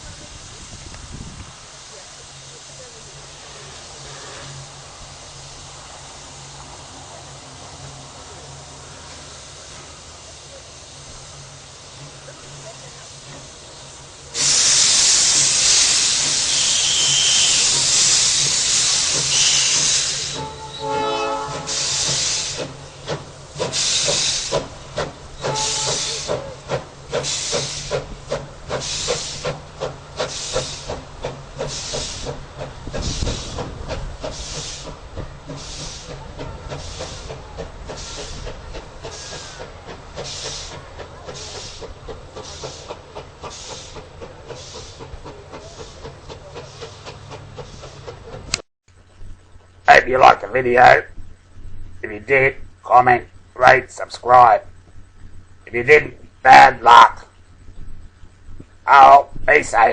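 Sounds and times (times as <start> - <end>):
steam hissing: 0.0 - 48.7
locomotive exhaust chuffs: 0.1 - 49.9
locomotive whistle blast: 14.4 - 22.6, 25.4 - 26.4.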